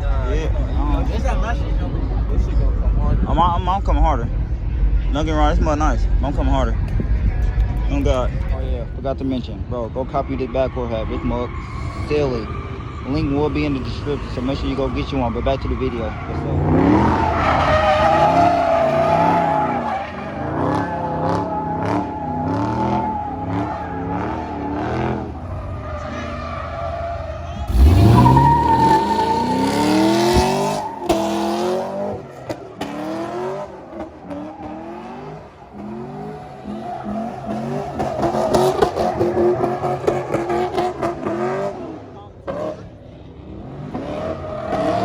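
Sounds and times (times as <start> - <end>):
car engine revving: 0.0 - 45.0
high tire squeal: 9.9 - 42.0, 43.9 - 45.0.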